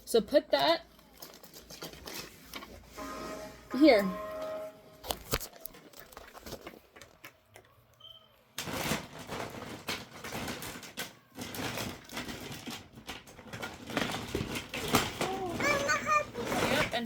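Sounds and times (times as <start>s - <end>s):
plastic toy train track clicking: 8.6s - 17.0s.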